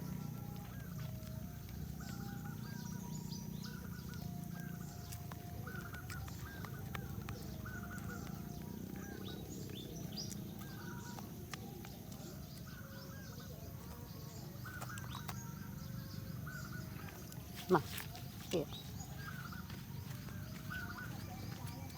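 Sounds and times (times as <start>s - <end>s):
birds calling: 0.0s - 21.9s
low background rumble: 0.0s - 21.9s.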